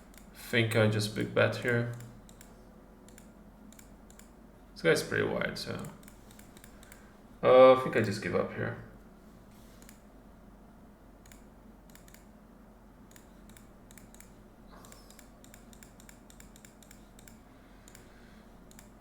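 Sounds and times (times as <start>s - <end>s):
computer controls clicking: 0.0s - 4.4s, 5.7s - 7.1s, 9.8s - 10.1s, 11.2s - 12.3s, 13.1s - 19.0s
low steady hum: 0.0s - 19.0s.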